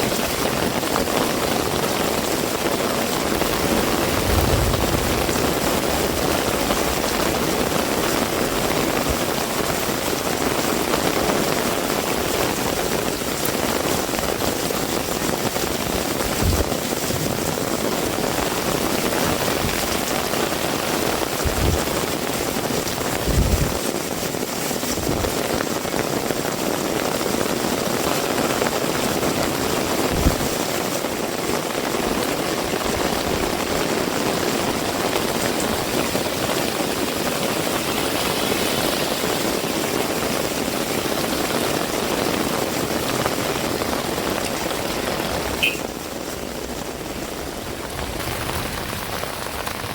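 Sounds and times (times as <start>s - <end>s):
heavy rain: 0.0s - 49.9s
dull low thumps: 3.8s - 7.4s.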